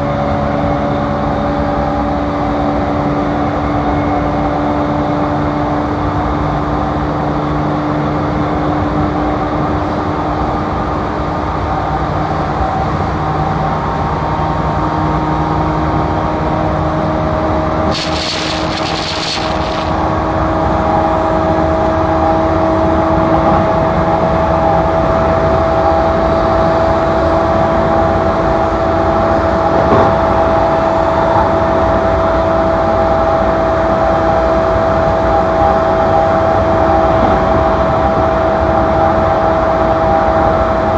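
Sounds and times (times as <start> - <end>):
wheels rumbling on rail: 0.0 - 40.9
train traction motor whine: 15.5 - 29.6
brief hiss: 16.4 - 23.3.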